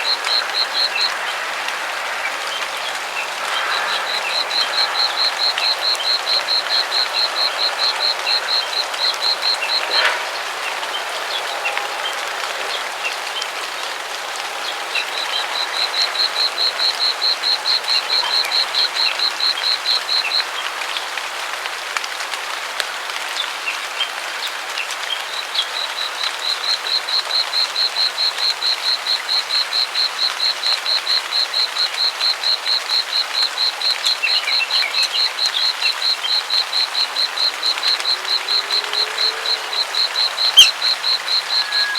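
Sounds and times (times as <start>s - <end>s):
frogs chorus: 0.0s - 21.2s, 23.7s - 41.9s
high rapid pulsing call: 36.8s - 41.9s.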